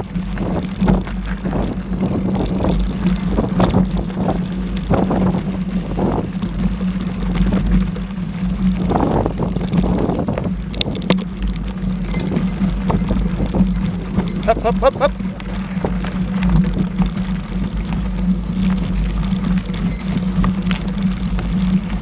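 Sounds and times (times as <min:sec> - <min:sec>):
bike rattling: 0:00.0 - 0:22.0
bike tyre and drivetrain noise: 0:00.0 - 0:22.0.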